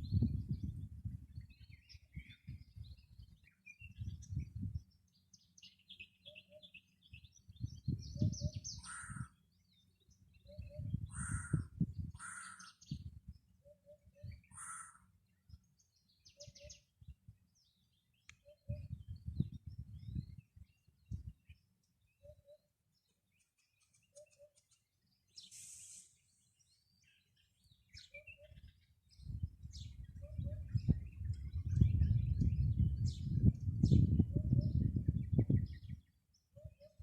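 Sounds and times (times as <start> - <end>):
low rumble in gusts: 0.0 - 4.9, 29.2 - 36.1
birds chirping and trilling: 0.0 - 37.0.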